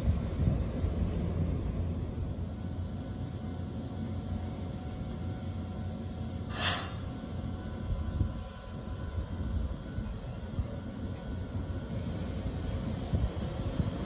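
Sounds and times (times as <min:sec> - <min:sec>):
train low rumble: 0:00.0 - 0:14.0
air hiss: 0:06.5 - 0:08.4.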